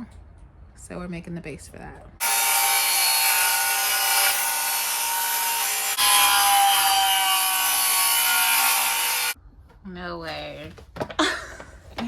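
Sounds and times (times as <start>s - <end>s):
power saw cutting wood: 2.2s - 9.4s.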